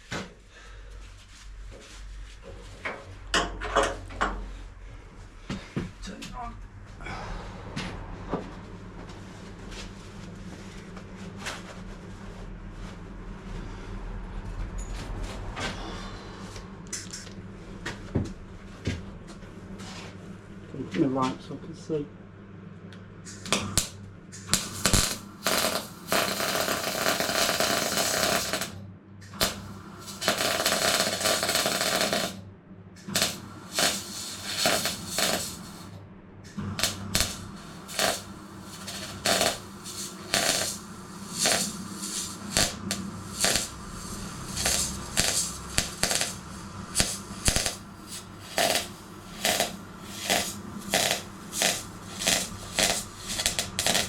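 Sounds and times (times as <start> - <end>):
welder low hum: 22.8 - 54.0
short tack welds: 23.3 - 32.4, 33.0 - 36.0, 36.8 - 54.0
welder welding: 23.3 - 32.4, 33.0 - 36.0, 36.6 - 54.0.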